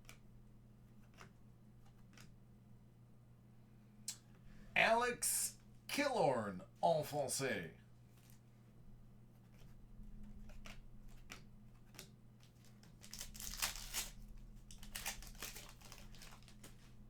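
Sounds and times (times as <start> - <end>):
faint electrical hum: 0.0 - 17.0
card packaging crinkling: 12.9 - 16.7.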